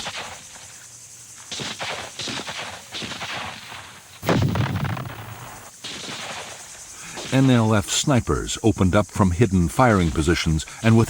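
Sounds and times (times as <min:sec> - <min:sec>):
rifle shots: 0:04.2 - 0:06.5.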